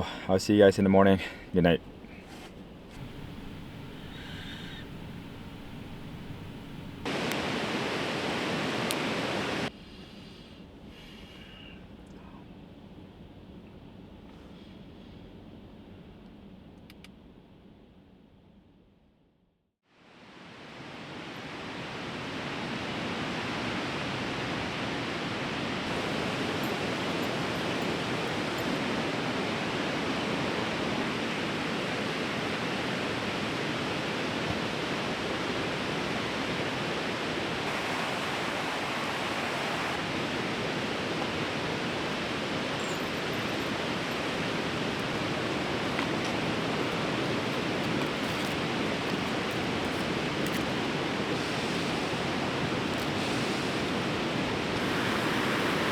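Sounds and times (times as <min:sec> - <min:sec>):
fast-flowing river rushing: 0:05.1 - 0:09.7, 0:25.5 - 0:55.9.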